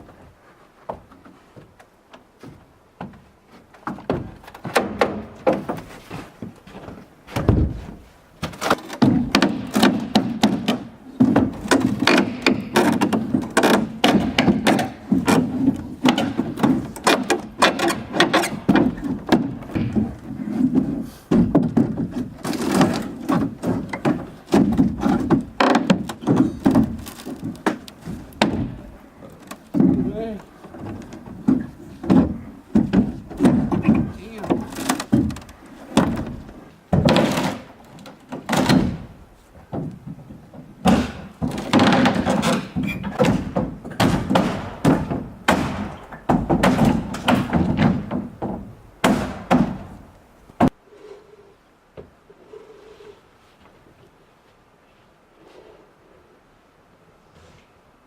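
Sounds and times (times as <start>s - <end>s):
hammering on wood: 3.9s - 6.6s, 7.4s - 50.8s.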